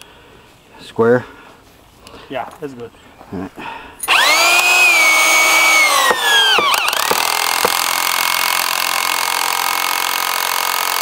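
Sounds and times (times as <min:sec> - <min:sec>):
electric drill driving screws: 0:04.0 - 0:11.0.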